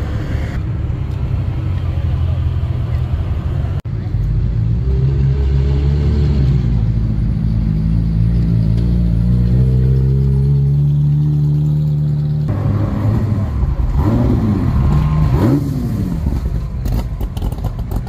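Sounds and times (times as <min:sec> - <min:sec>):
engine revving: 0:04.7 - 0:17.7.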